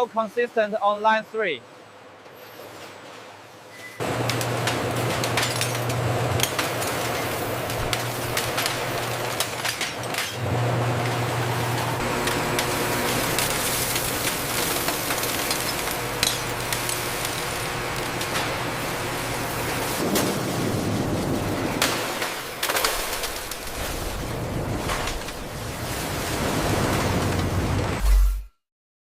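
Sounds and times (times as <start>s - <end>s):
factory machinery humming: 3.8s - 26.2s.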